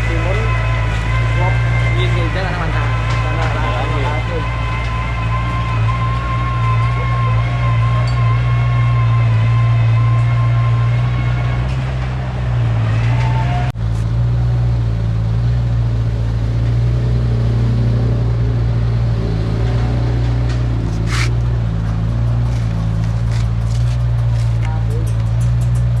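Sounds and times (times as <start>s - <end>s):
high whine: 0.0s - 13.7s
diesel engine under load: 0.0s - 26.0s.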